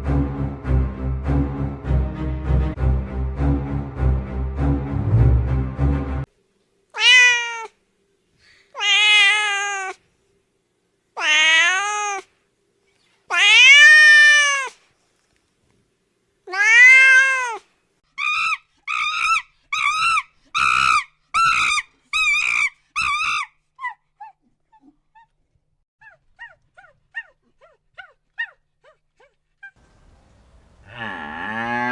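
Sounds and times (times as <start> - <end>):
cat meowing: 7.0 - 7.7, 8.8 - 10.0, 11.2 - 12.2, 13.3 - 14.7, 16.5 - 17.6.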